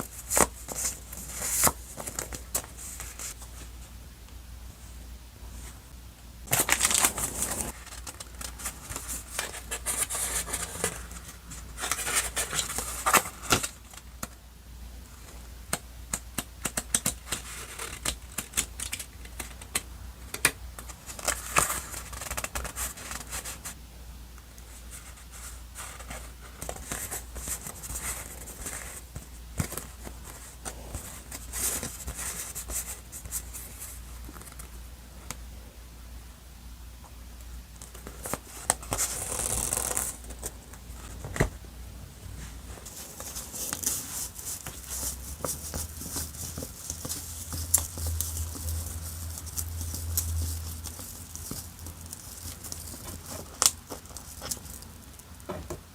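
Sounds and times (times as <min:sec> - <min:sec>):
paper rustling: 0:37.9 - 0:41.5, 0:42.4 - 0:54.9.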